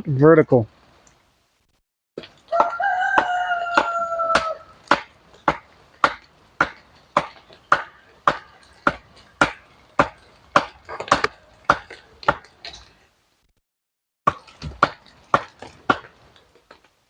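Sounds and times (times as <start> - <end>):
wooden stakes being hammered: 2.2 - 12.9, 14.3 - 16.8.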